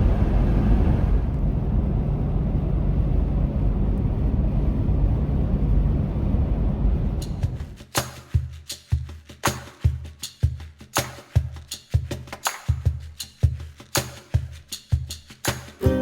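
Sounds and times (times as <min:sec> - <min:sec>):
car road rumble inside cabin: 0:00.0 - 0:07.8.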